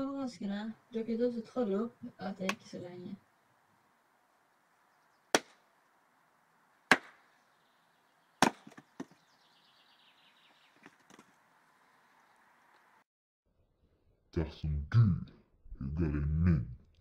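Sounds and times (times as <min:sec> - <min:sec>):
axe chopping into tree trunk: 0:05.3 - 0:05.6, 0:06.9 - 0:07.2, 0:08.4 - 0:09.2.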